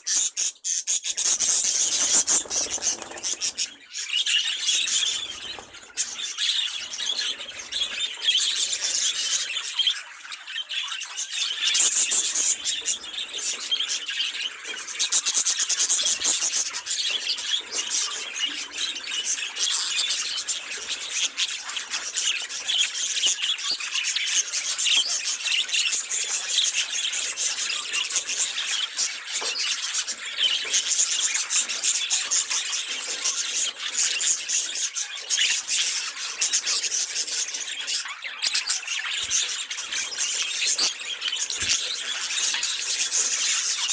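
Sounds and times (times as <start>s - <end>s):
budgerigars chattering: 0.0s - 43.9s.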